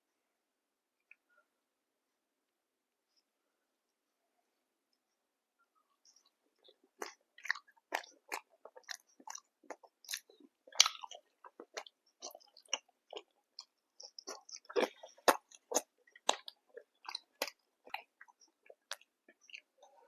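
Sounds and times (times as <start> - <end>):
crunchy chewing and biting: 6.2 - 19.9.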